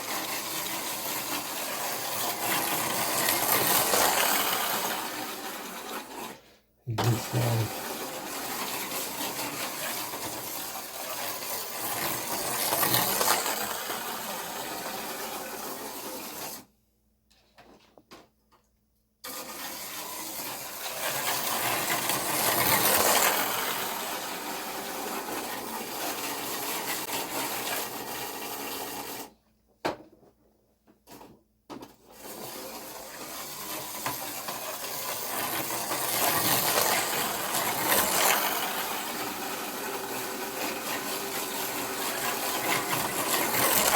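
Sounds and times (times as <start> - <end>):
slot car motors whirring: 32.9 - 43.9.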